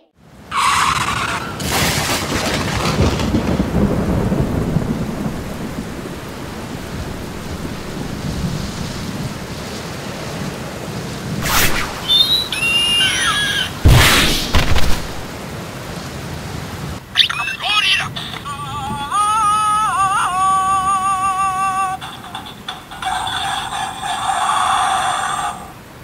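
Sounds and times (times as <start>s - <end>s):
heavy rain: 0.2s - 26.0s
thunder rumble: 1.0s - 15.5s
high gliding squeals: 11.4s - 14.5s
sudden burst: 11.4s - 15.3s
loud hit: 13.8s - 15.3s.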